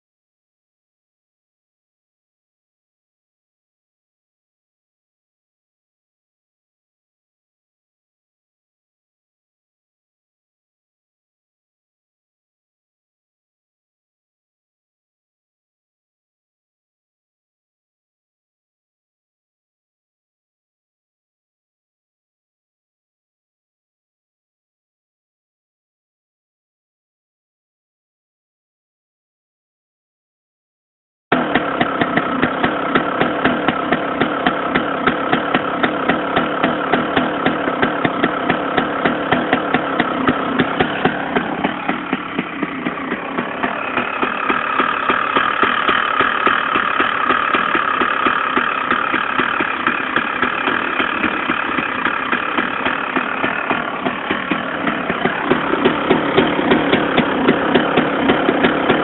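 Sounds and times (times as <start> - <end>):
two-stroke engine idling: 31.3 - 59.0.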